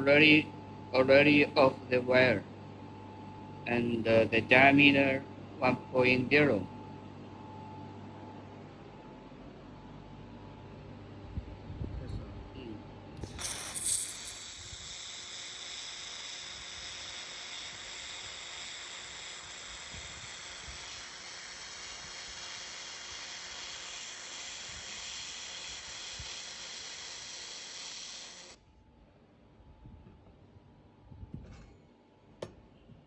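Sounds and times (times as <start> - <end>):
laser welder hissing: 13.2 - 28.6.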